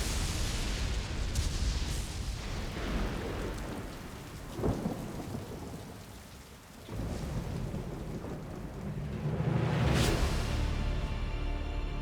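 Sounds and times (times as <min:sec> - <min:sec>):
low rumble of thunder: 0:00.0 - 0:06.2, 0:06.8 - 0:11.0
rain: 0:00.0 - 0:12.0
loud thunderclap: 0:06.9 - 0:10.8.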